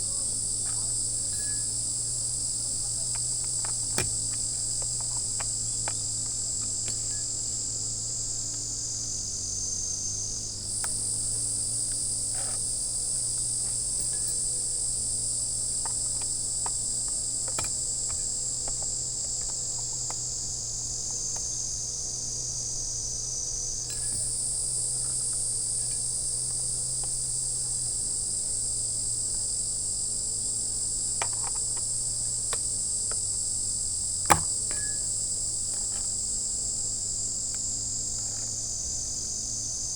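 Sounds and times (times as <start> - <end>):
crickets chirping: 0.0 - 39.9
sharp knock: 34.3 - 34.8.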